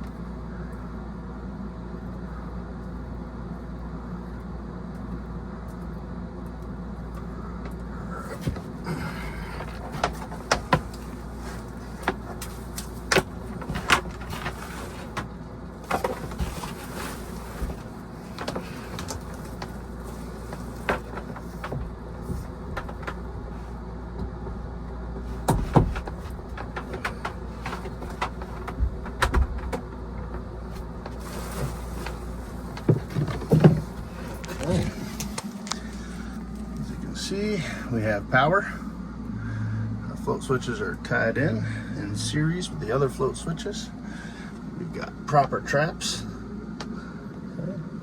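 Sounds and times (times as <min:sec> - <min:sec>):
low hum of equipment: 0:00.0 - 0:48.0.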